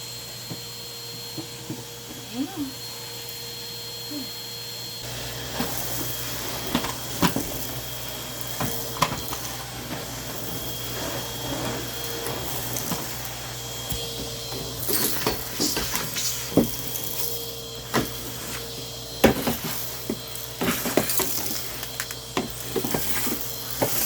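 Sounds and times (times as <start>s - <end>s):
vacuum cleaner whining: 0.0s - 24.0s.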